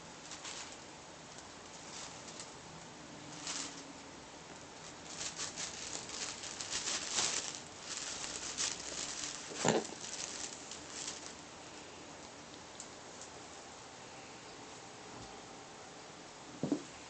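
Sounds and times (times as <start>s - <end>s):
kittens scampering and scrabbling: 0.0s - 2.6s, 3.2s - 11.5s.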